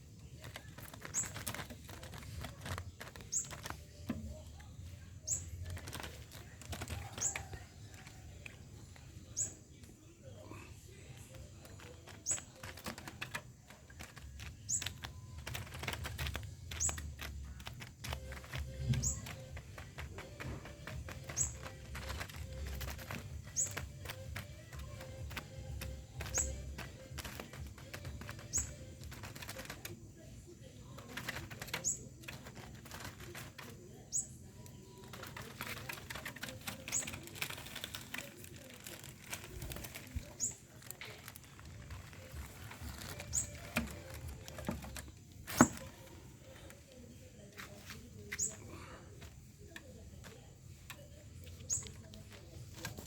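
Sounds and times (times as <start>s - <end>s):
small bird chirping: 0.0s - 53.0s
light clicks and rustling: 0.2s - 4.7s, 5.3s - 9.5s, 11.1s - 30.0s, 30.9s - 53.0s
light clicks and tapping: 11.1s - 30.0s, 30.9s - 33.8s.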